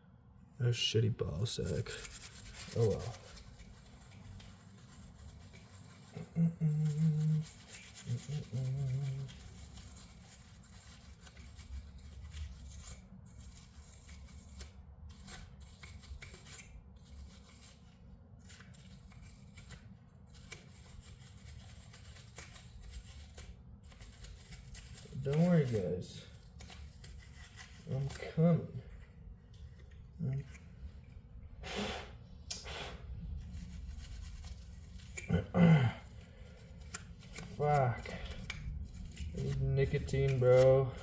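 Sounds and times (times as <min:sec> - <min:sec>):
rustling and scraping of parts: 0:01.3 - 0:06.4, 0:07.4 - 0:31.5, 0:36.0 - 0:41.0
man humming: 0:06.2 - 0:07.5, 0:35.3 - 0:36.0.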